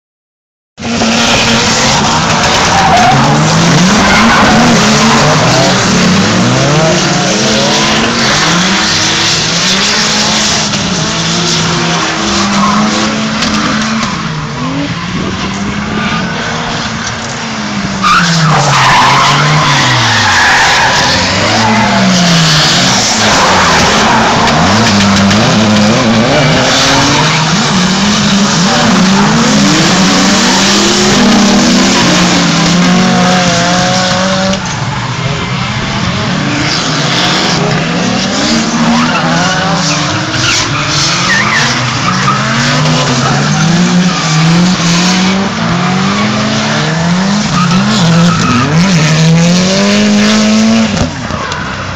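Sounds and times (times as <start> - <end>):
tyres squealing and skidding: 0.8 - 14.9, 16.0 - 51.9
car engine revving hard: 18.0 - 34.8, 35.6 - 51.2.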